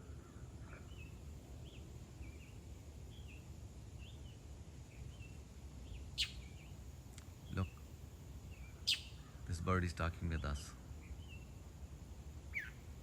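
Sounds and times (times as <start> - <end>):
bird chirping faintly: 8.5 - 9.6, 12.5 - 13.0.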